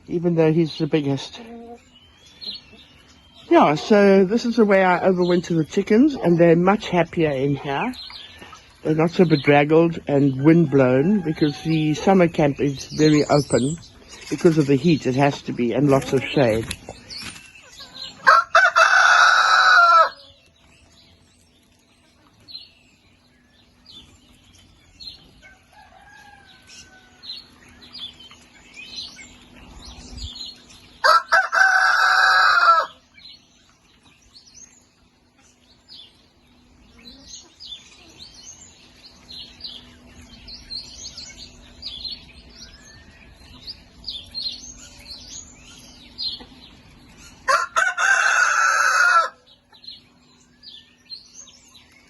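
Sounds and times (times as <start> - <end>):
chickens chirping and clucking: 0.0 - 52.0
rooster crowing: 18.2 - 20.4, 25.4 - 27.4, 31.0 - 33.0, 47.5 - 49.5.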